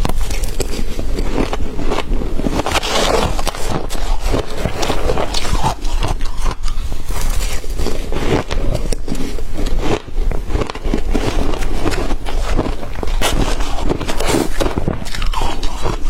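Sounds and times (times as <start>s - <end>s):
shaved ice being chewed: 0.0s - 16.0s.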